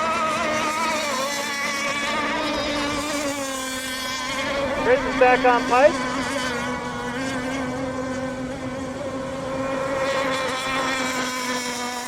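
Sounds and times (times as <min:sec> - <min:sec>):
small boat engines buzzing whine: 0:00.0 - 0:12.0.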